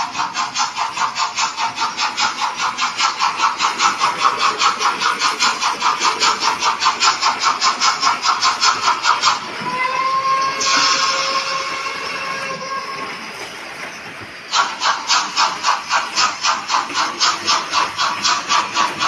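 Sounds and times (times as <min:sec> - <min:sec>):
steam locomotive chuffing: 0:00.0 - 0:19.0
steam whistle: 0:09.6 - 0:13.4.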